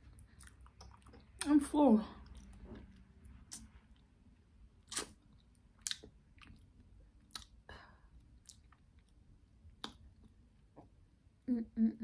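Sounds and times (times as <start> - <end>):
chewing food: 0.0 - 1.5, 2.2 - 4.2, 4.8 - 7.6, 8.2 - 10.9
wet mouth clicks and smacks: 0.2 - 1.5, 2.2 - 4.1, 4.8 - 6.7, 7.3 - 7.6, 9.8 - 10.3.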